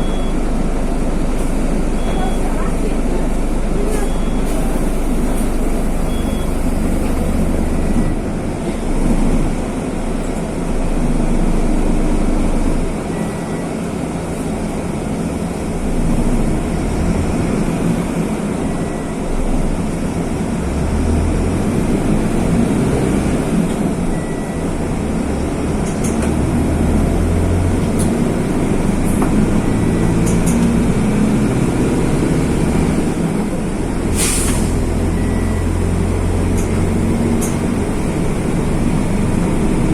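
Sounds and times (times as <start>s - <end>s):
short faint beep: 0.0s - 0.5s, 2.0s - 2.7s, 3.8s - 7.3s, 34.4s - 35.8s
bus diesel engine running: 0.0s - 39.9s
hiss of air: 34.1s - 34.8s.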